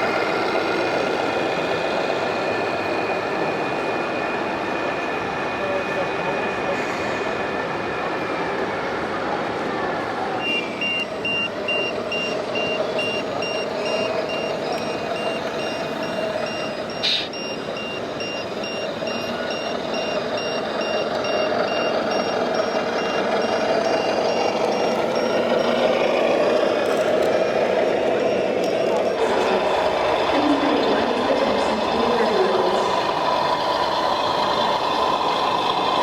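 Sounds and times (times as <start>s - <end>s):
continuous background hum: 9.0s - 34.7s
high electronic reversing beeps: 10.4s - 26.6s.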